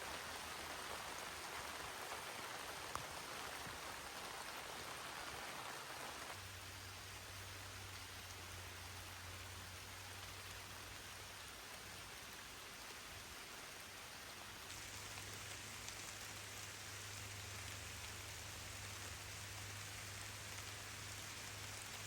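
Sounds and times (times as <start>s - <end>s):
steady rain hiss: 0.0s - 22.0s
raindrop ticks: 0.9s - 5.0s.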